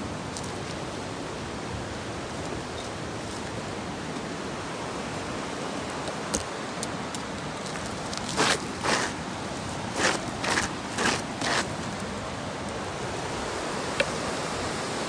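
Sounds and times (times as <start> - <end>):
outdoor background noise: 0.0 - 15.0
rustling scrapes: 7.6 - 12.0.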